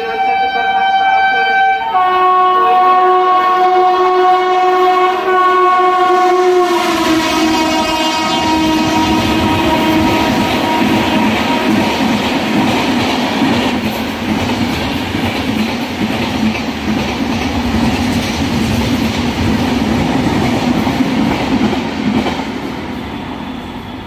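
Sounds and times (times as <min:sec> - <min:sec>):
train wheels rumbling on rails: 0:04.8 - 0:24.0.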